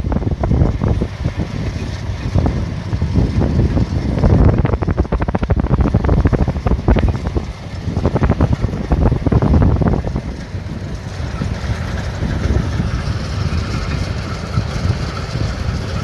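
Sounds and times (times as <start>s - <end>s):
combine harvester clattering: 0.0s - 16.0s
low engine rumble: 0.0s - 16.0s
wind buffeting microphone: 0.0s - 16.0s.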